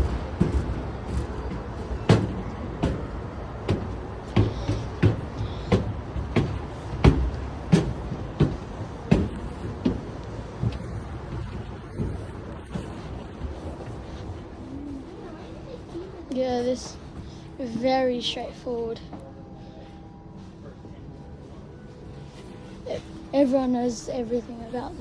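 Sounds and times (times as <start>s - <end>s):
footsteps walking: 0.0s - 18.0s
low background rumble: 0.0s - 25.0s.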